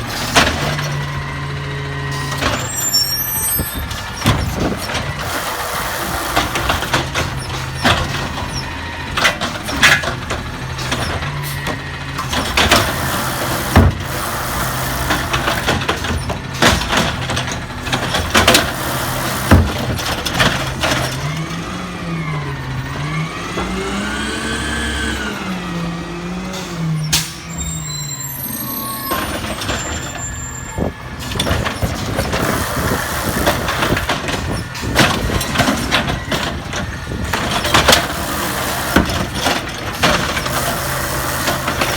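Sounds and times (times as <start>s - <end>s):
garbage truck engine running: 0.0s - 41.9s
clanks and bangs: 15.0s - 21.4s.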